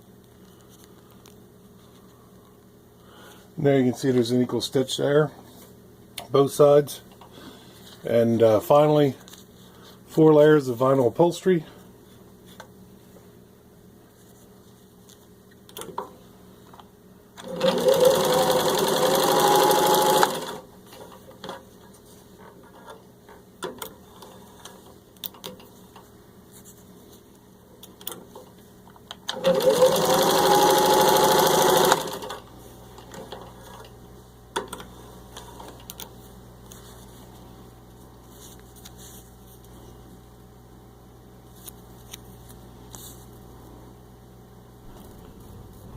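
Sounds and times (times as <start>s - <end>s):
sewing machine motor running: 17.4s - 20.6s, 29.3s - 32.4s.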